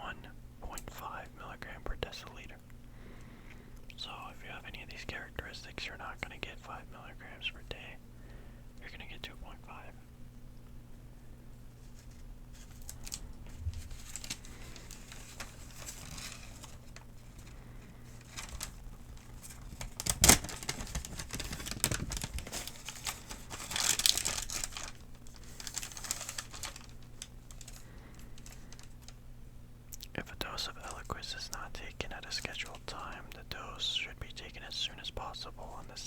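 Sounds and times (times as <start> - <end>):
paper crinkling: 11.8 - 29.2, 30.2 - 36.0.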